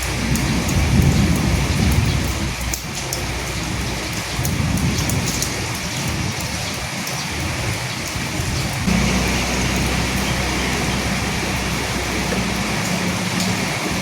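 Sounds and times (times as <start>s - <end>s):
raindrops ticking on a surface: 0.0s - 14.0s
steady rain: 0.0s - 14.0s
low rumble: 8.9s - 14.0s.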